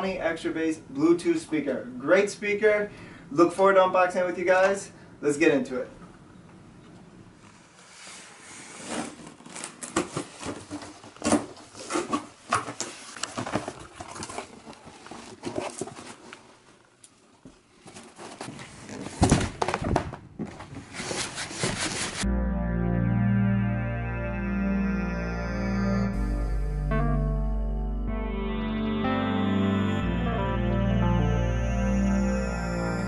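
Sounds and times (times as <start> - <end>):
packaging rustling and crinkling: 8.8 - 16.7
music: 22.2 - 33.0.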